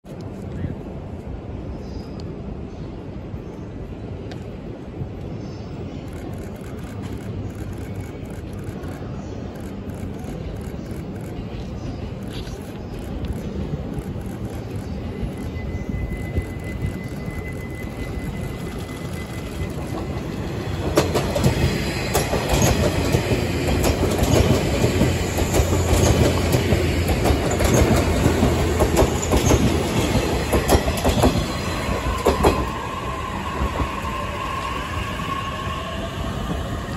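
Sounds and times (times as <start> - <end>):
electric train rumbling past: 0.2 - 36.9
electric train whine: 2.4 - 36.9
wheels clacking over rail joints: 19.2 - 32.8.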